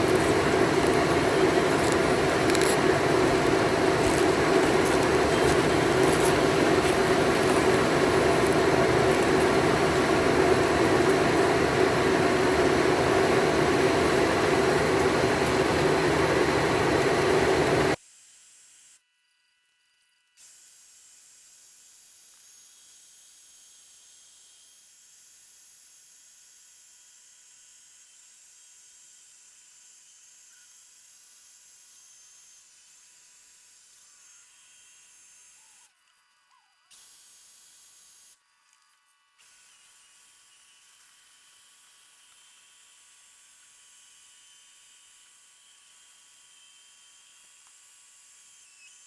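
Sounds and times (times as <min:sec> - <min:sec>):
engine-driven machine humming: 0:00.0 - 0:18.0.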